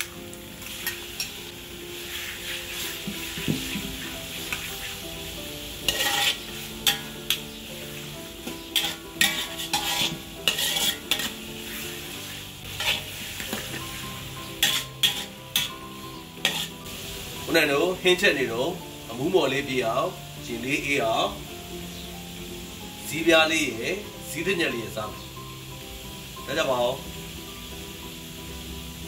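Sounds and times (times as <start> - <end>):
meat sizzling in hot oil: 0.0 - 29.0
metal ladle scraping a wok: 0.6 - 17.1.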